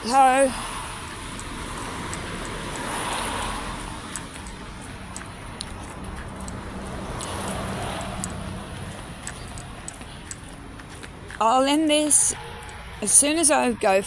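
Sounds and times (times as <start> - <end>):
steady rushing street noise: 0.0 - 14.0
faint light ticks: 4.1 - 11.1.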